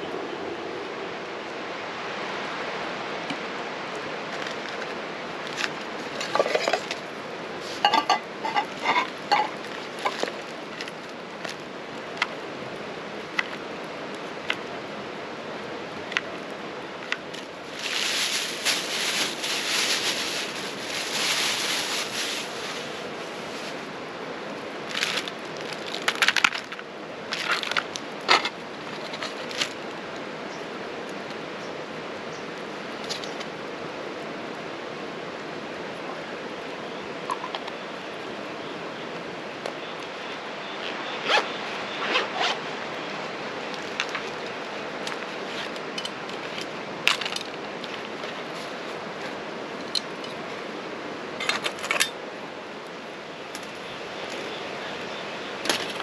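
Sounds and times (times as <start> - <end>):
steady hiss: 0.0 - 56.0
fire crackling: 15.3 - 26.8
rustling: 17.0 - 24.0.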